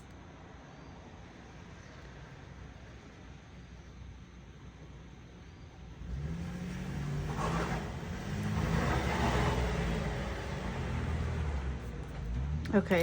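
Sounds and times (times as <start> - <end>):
car engine revving: 5.9 - 13.0.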